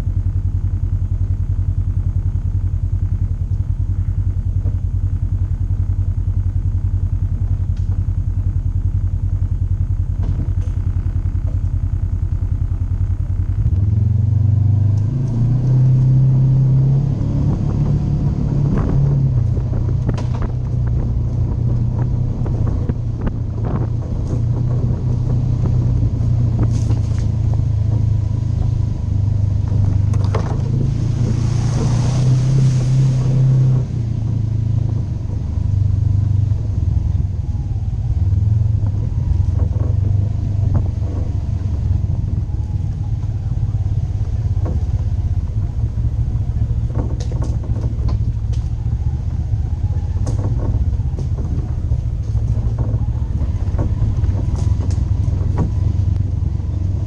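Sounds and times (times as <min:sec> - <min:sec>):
vehicle engine running: 0:00.0 - 0:57.0
knocks and rattles: 0:17.6 - 0:37.6, 0:38.4 - 0:57.0.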